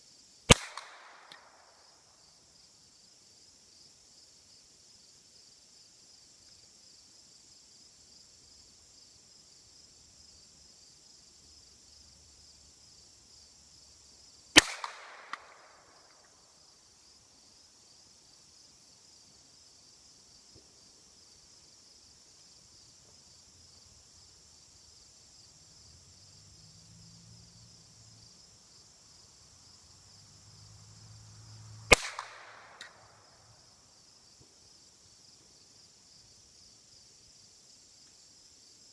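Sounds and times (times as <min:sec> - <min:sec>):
insects buzzing: 0:00.0 - 0:38.9
gunshots with short echo: 0:00.5 - 0:01.6, 0:14.6 - 0:15.8, 0:31.9 - 0:33.0.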